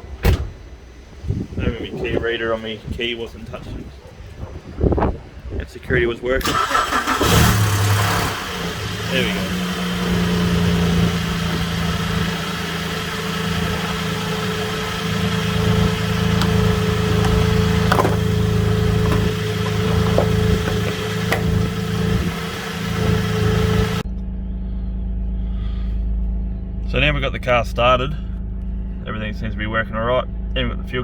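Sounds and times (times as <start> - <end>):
car engine idling: 6.4 - 31.0.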